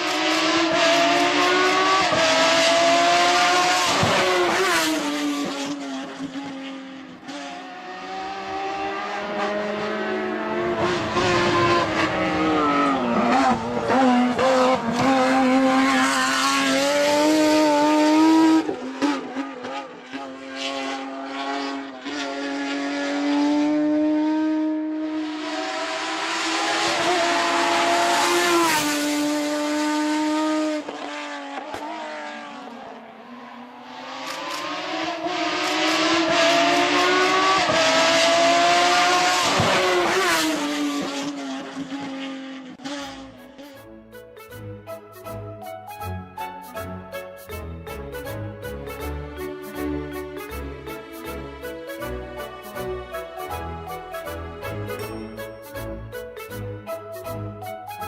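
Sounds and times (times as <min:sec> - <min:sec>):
race car engine revving: 0:00.0 - 0:43.7.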